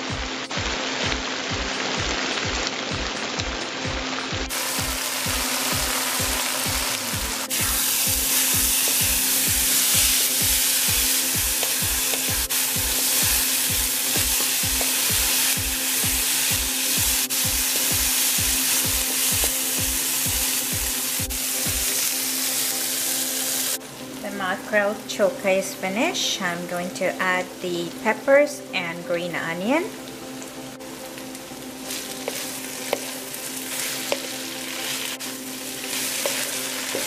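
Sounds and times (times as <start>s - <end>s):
background music with steady beat: 0.0s - 37.0s
food sizzling in hot oil: 0.0s - 37.0s
wooden spatula scraping: 31.9s - 34.3s.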